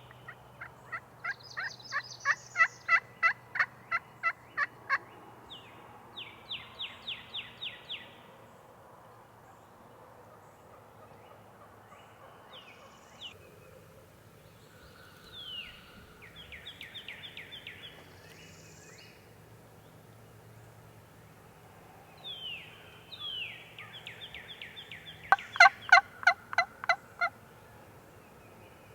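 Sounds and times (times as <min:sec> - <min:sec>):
faint outdoor background: 0:00.0 - 0:28.9
turkey yelping: 0:00.6 - 0:05.0, 0:25.3 - 0:27.4.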